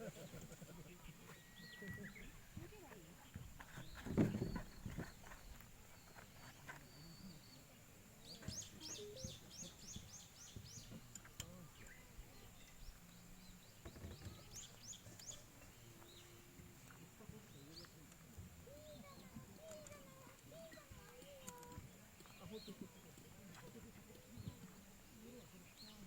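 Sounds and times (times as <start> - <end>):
low knock or rustle: 3.6 - 5.4
faint steady high tone: 8.4 - 10.2.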